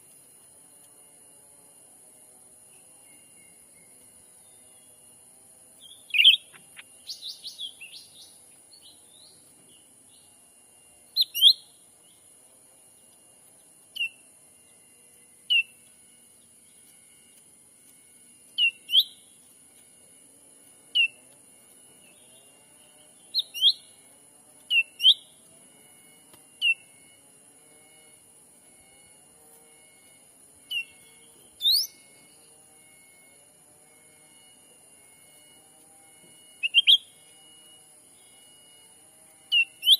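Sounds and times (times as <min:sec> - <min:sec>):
high insect drone: 0:00.0 - 0:39.9
bird chirping: 0:02.7 - 0:05.0, 0:05.8 - 0:10.4, 0:11.1 - 0:14.8, 0:15.4 - 0:17.4, 0:18.5 - 0:19.5, 0:20.9 - 0:21.3, 0:21.9 - 0:25.4, 0:26.6 - 0:27.2, 0:30.6 - 0:32.6, 0:36.5 - 0:38.6, 0:39.5 - 0:39.9.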